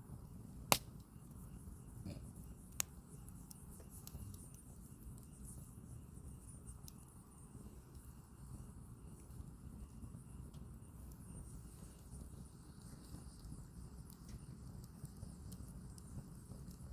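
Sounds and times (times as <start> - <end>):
campfire flames rushing: 0.0 - 16.9
wood crackling and popping: 0.7 - 1.6, 9.0 - 16.9.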